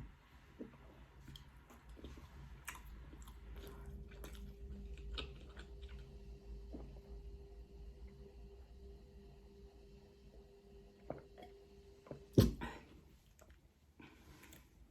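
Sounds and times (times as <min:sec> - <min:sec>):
chewing and crunching food: 0:00.0 - 0:07.4, 0:11.1 - 0:14.9
faint steady hum: 0:00.0 - 0:14.9.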